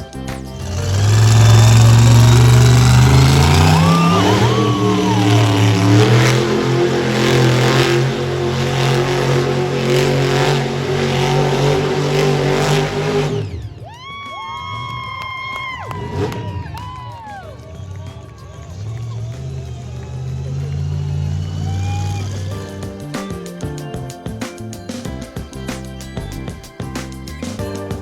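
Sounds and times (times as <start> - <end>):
truck engine revving: 0.0 - 13.8, 17.6 - 24.0
steady high tone: 0.6 - 13.6.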